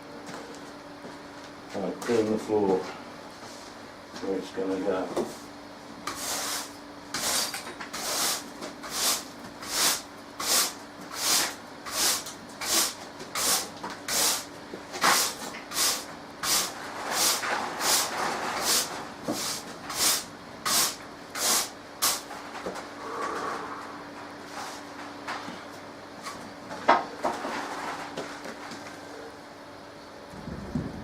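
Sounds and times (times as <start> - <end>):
broom sweeping floor: 6.1 - 22.4, 24.4 - 25.6.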